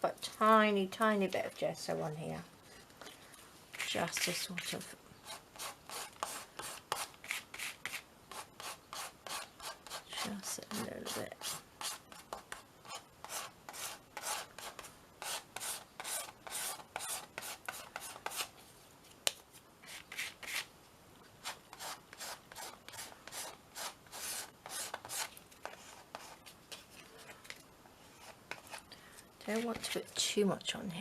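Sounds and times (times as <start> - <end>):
scratchy strokes on canvas: 21.4 - 28.9.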